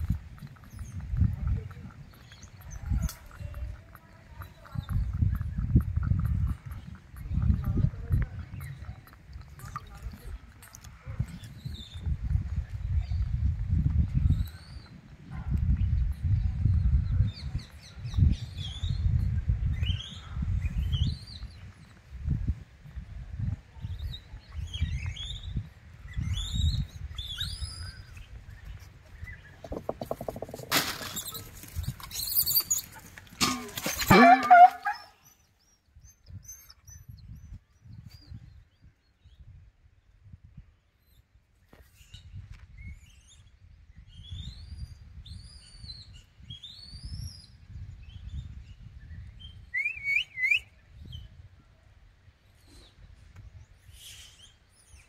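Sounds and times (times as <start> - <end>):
birds chirping: 0.0 - 10.6, 24.1 - 33.2
low thumps: 29.5 - 31.1
whistled bird calls: 49.2 - 51.3.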